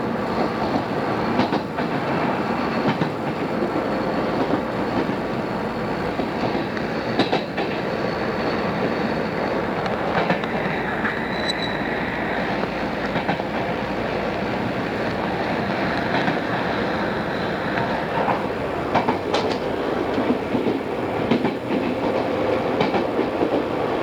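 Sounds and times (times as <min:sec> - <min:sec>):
electric train rumbling: 0:00.0 - 0:24.0
wheels clicking over rail joints: 0:17.7 - 0:23.6.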